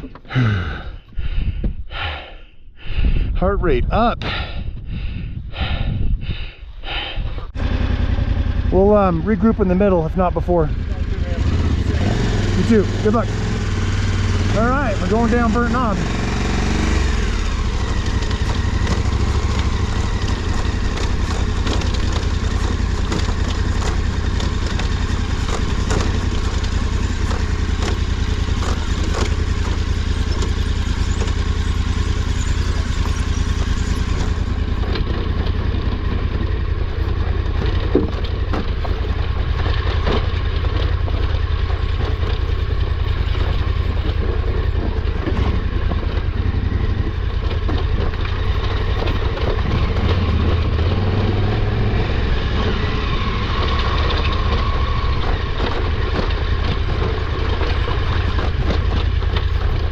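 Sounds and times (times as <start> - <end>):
motorcycle engine running: 0.0 - 0.9, 6.9 - 59.9
knocks and clatter from rocks: 18.0 - 33.2, 37.3 - 46.2, 53.8 - 59.9.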